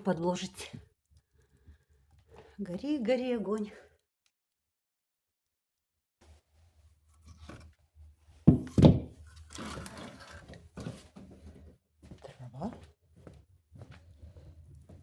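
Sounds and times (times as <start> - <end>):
loud wooden knocks: 8.5 - 9.2.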